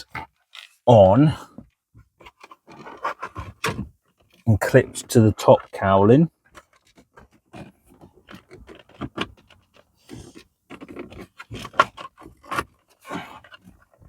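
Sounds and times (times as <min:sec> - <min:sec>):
plastic panel scraping: 0:02.2 - 0:05.7, 0:06.5 - 0:14.0.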